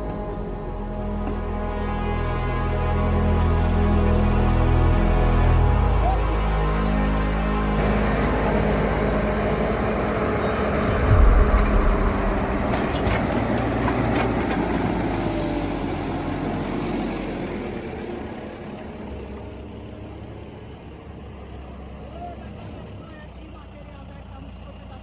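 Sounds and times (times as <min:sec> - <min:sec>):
diesel engine running: 0:00.0 - 0:25.0
heavy low thump: 0:10.4 - 0:14.3.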